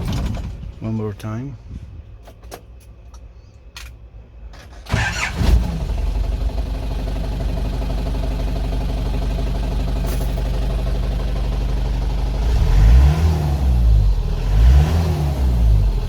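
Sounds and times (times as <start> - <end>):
diesel engine starting and idling: 4.2 - 16.0.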